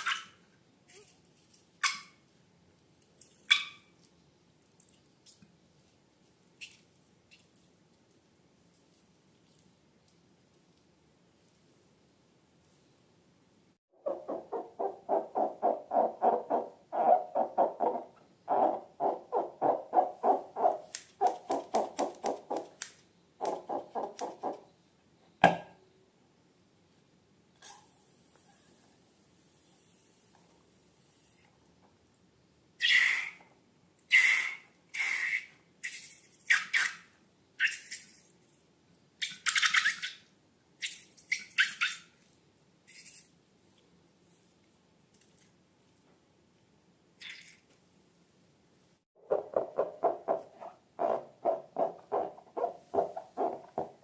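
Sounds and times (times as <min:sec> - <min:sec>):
small wet clicks: 0:02.8 - 0:05.6, 0:44.6 - 0:46.0.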